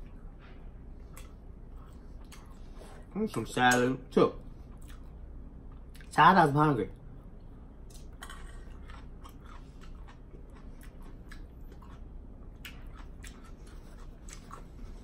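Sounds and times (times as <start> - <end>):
person chewing food: 1.0 - 3.1, 4.6 - 6.1, 7.3 - 15.0.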